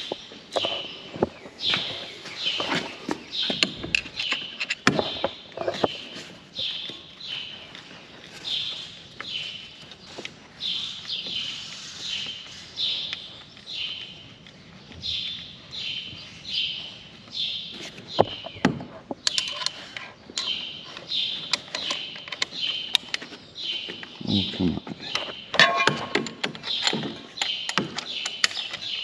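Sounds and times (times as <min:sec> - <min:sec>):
bird chirping: 0:00.0 - 0:29.0
sharp clicks and knocks: 0:02.6 - 0:06.0, 0:17.9 - 0:24.2, 0:24.8 - 0:29.0.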